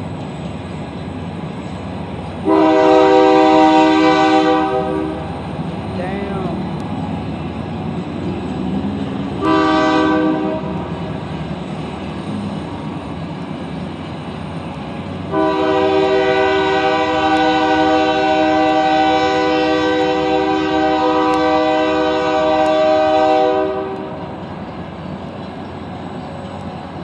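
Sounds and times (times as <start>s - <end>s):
diesel train rumbling past: 0.0s - 27.0s
locomotive air horn blast: 2.4s - 5.3s, 9.4s - 10.8s, 15.3s - 24.2s.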